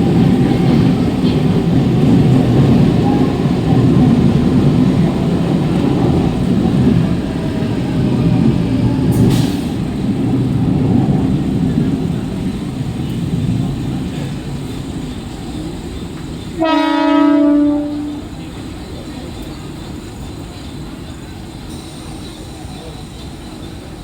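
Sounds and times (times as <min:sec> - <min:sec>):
electric train rumbling on track: 0:00.0 - 0:24.0
train horn blast: 0:16.6 - 0:18.4.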